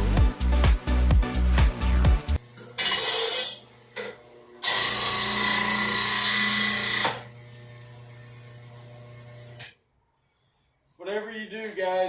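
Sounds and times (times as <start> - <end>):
grinder motor humming: 2.4 - 9.7
grinder sharpening mower blade: 2.6 - 9.7.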